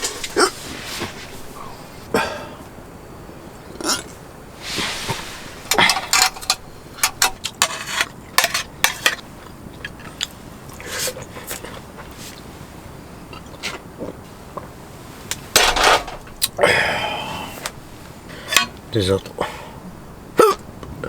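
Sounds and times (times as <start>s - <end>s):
tableware clattering and scraping: 3.8s - 9.2s, 15.4s - 16.4s, 18.4s - 18.8s.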